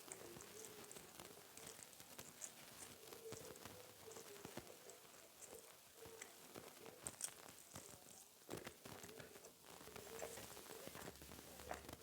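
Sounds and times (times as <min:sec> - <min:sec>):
wet chewing: 0:08.5 - 0:12.0.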